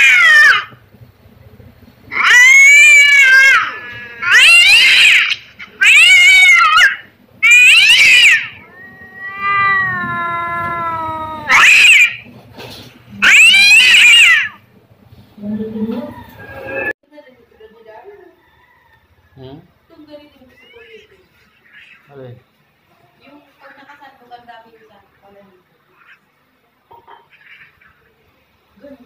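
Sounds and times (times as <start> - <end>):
cat yowling: 0.0 - 0.8, 2.1 - 12.3, 13.2 - 14.6, 20.4 - 22.1.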